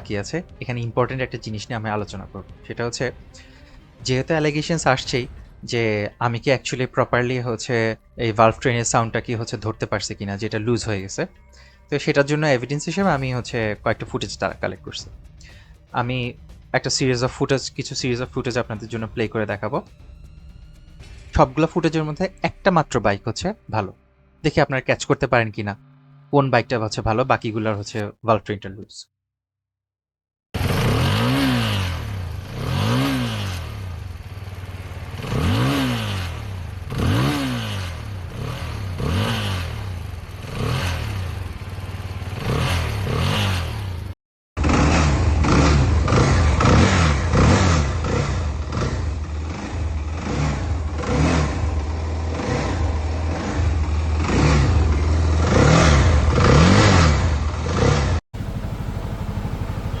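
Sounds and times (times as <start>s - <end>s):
motorcycle engine throttle blips: 0.0s - 20.1s, 30.6s - 60.0s
engine idling with light clatter: 0.0s - 21.4s, 33.6s - 43.4s, 57.5s - 60.0s.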